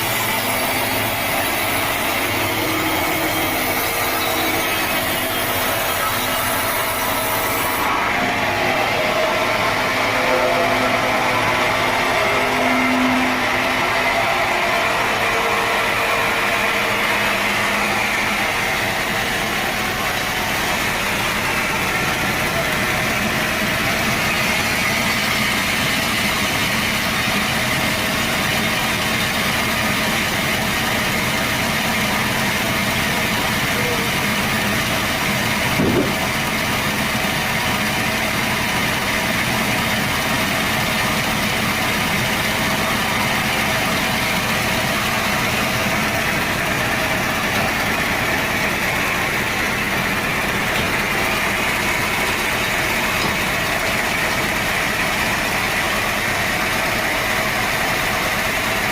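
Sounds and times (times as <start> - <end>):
sawmill saw running: 0.0 - 58.9.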